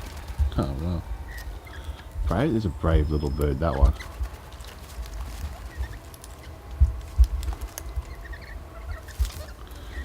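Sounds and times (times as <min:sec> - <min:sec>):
low rumbling thumps: 0:00.0 - 0:03.2, 0:03.8 - 0:10.0
birds pecking at food: 0:00.0 - 0:10.0
faint bird chirps: 0:01.2 - 0:04.2, 0:05.6 - 0:06.6, 0:07.8 - 0:10.0.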